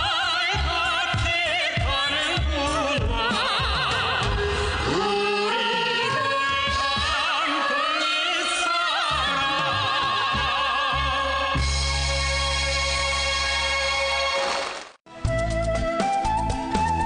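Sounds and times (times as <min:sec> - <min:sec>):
musical accompaniment: 0:09.3 - 0:17.0.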